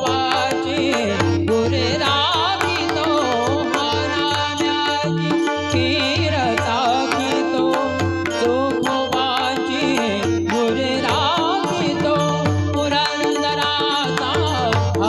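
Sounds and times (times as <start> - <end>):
devotional singing: 0.0 - 15.0
held accompanying tones: 0.0 - 15.0.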